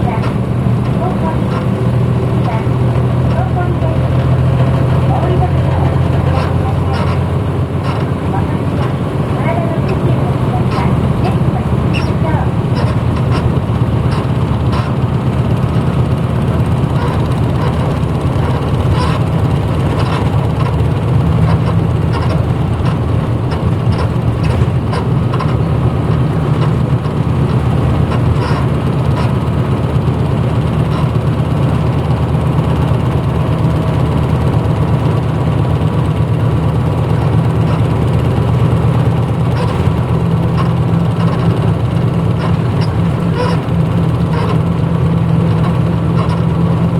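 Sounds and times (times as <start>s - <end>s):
bus diesel engine droning: 0.0s - 46.9s
short clicks and rattles: 0.0s - 46.9s.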